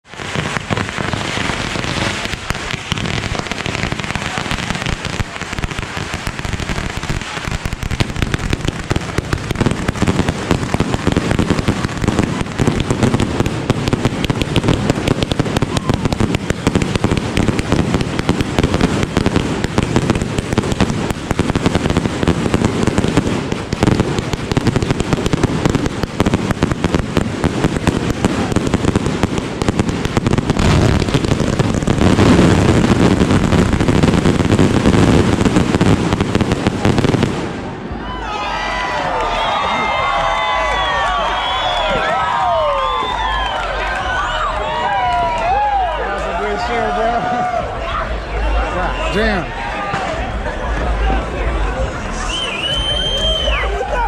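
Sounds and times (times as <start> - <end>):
fireworks barrage: 0.0 - 54.0.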